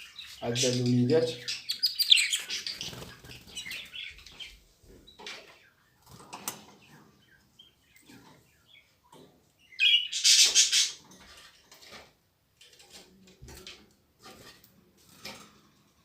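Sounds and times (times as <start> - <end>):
young birds chirping: 0.0 - 11.1.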